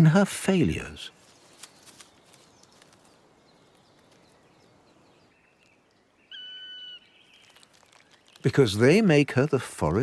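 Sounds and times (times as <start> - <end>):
faint woodland ambience: 0.0 - 10.0
small ticks: 1.5 - 4.4.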